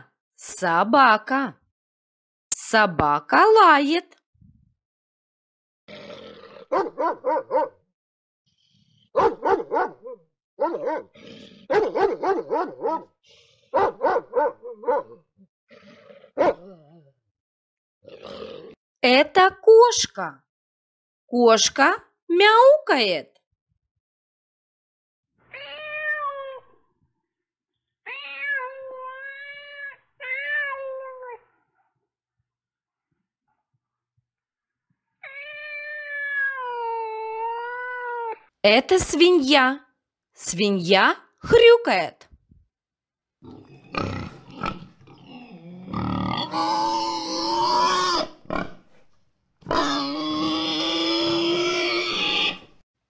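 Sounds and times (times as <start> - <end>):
pig grunting: 5.9 - 6.8, 11.0 - 12.1, 15.7 - 17.1, 18.1 - 18.8, 43.4 - 52.7
cat meowing: 25.5 - 26.8, 28.1 - 31.4, 35.2 - 38.5
pig drawn-out pitched calls: 43.4 - 49.0, 49.6 - 52.8.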